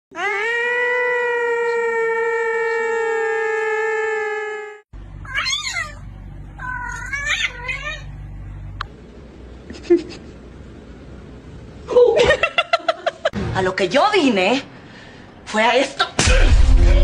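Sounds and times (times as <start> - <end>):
cat meowing: 5.2 - 8.1.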